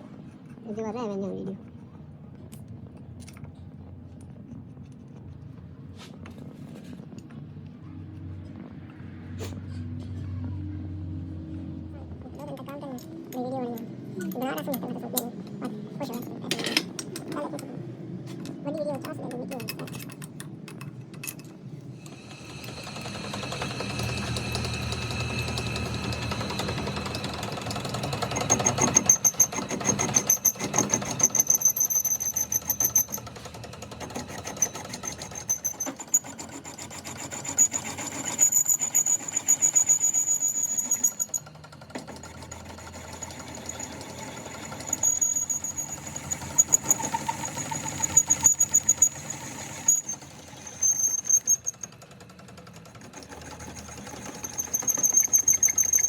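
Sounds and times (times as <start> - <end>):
power tool rattling and whining: 21.9 - 56.0.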